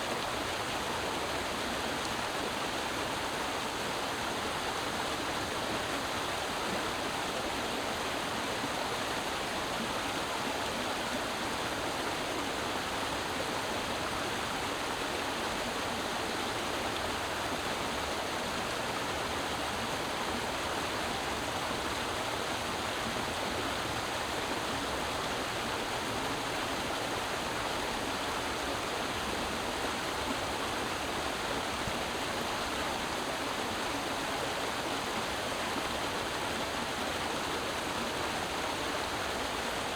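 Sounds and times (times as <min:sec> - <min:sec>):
creek water babbling over rocks: 0:00.0 - 0:39.9.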